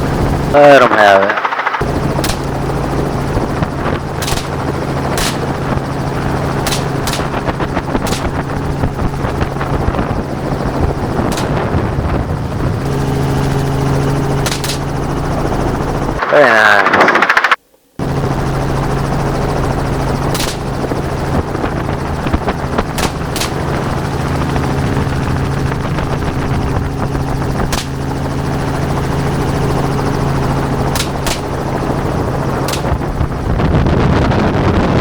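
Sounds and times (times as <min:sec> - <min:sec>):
helicopter engine and rotor hum: 0:00.0 - 0:35.0
sharp cracks: 0:00.5 - 0:08.9, 0:10.4 - 0:12.2, 0:14.4 - 0:15.2, 0:16.2 - 0:17.6, 0:20.2 - 0:24.2, 0:27.6 - 0:28.2, 0:30.4 - 0:33.6.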